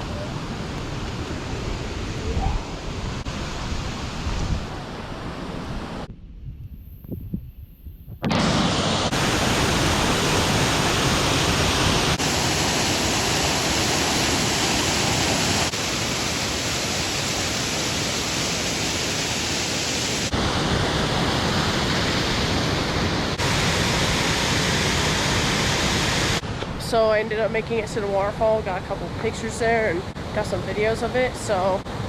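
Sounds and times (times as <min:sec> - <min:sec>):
waterfall roaring: 0:00.0 - 0:06.1, 0:08.3 - 0:26.4.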